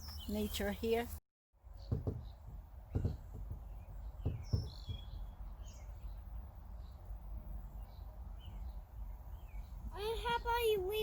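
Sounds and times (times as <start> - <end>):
birds chirping: 0.0 - 11.0
soft low knocks: 1.8 - 5.4.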